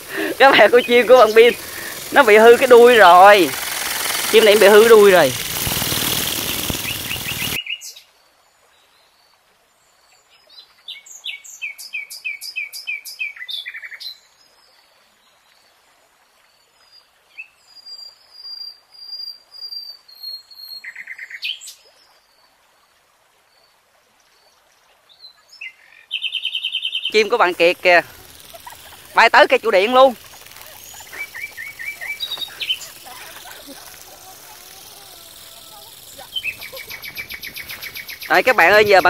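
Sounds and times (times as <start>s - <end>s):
loud noise near microphone: 0.0s - 7.6s
small birds chirping: 0.0s - 8.0s, 25.2s - 39.0s.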